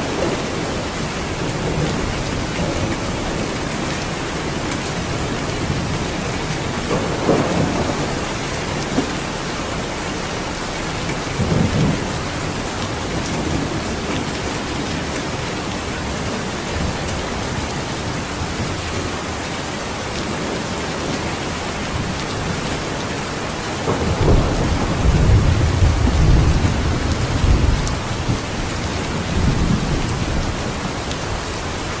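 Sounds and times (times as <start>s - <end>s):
thunder rumbling: 0.0s - 19.4s, 20.2s - 32.0s
heavy rainfall: 0.0s - 32.0s.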